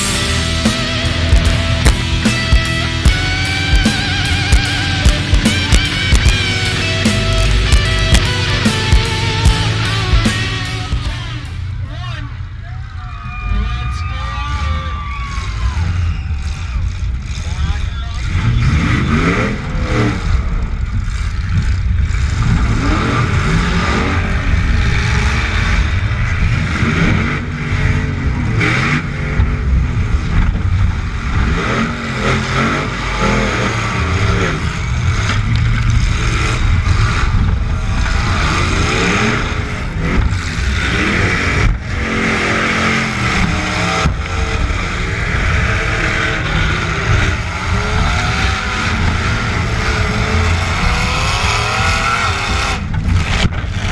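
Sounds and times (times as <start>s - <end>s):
sudden bangs: 0.0s - 12.1s
truck engines revving: 0.0s - 53.9s.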